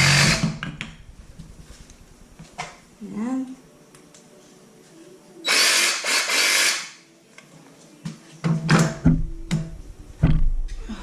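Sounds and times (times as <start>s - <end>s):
jigsaw running: 0.0s - 0.6s, 5.5s - 6.9s
knocks and clunks: 8.5s - 10.8s.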